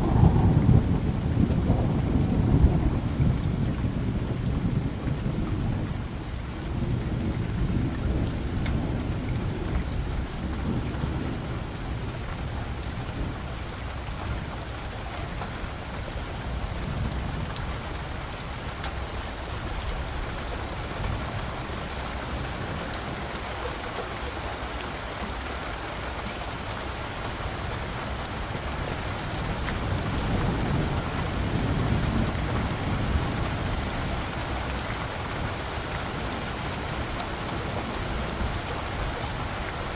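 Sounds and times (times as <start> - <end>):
distant thunder rumbling: 0.0 - 25.0, 26.5 - 39.9
steady rain falling: 0.0 - 39.9.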